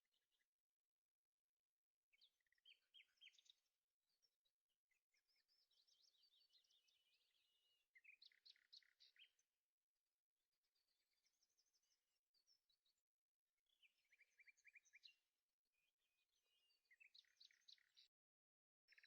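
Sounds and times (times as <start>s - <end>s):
faint bird chirps: 0.0s - 19.0s
bird twittering trill: 2.1s - 9.5s, 13.6s - 15.2s, 15.8s - 18.1s.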